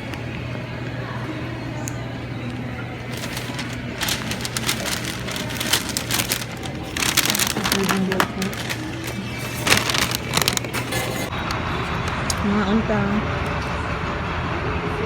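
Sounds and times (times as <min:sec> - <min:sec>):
food packaging crinkling: 0:03.0 - 0:11.3.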